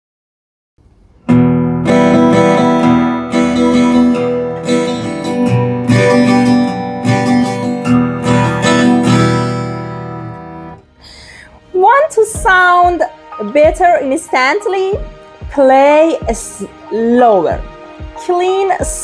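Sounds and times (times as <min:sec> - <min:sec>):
acoustic guitar strumming chords: 0:00.8 - 0:11.0, 0:11.8 - 0:19.0.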